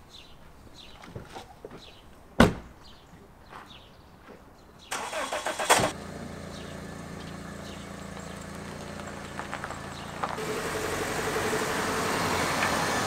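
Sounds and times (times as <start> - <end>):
car engine starter cranking: 4.9 - 6.0
car engine idling: 5.0 - 13.0.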